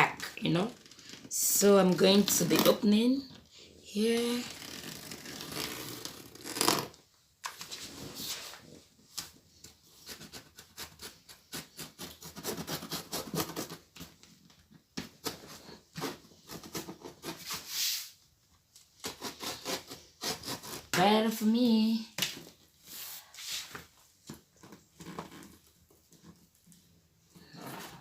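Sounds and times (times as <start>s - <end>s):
sharp scrape: 16.0s - 18.2s, 22.9s - 23.8s.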